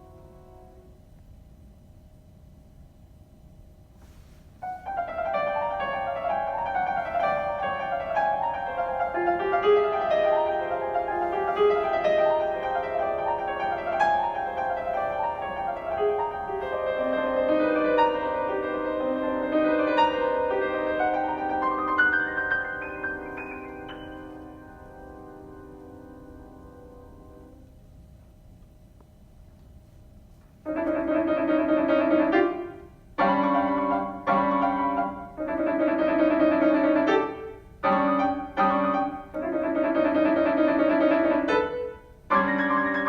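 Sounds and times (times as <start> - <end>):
solo piano playing: 4.6 - 27.7, 30.6 - 43.0.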